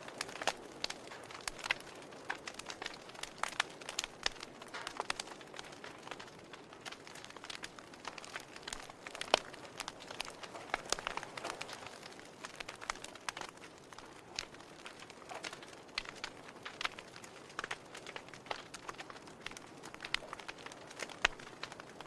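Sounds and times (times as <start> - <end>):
soft fire hiss: 0.0 - 22.0
wood fire crackling and popping: 0.0 - 22.0.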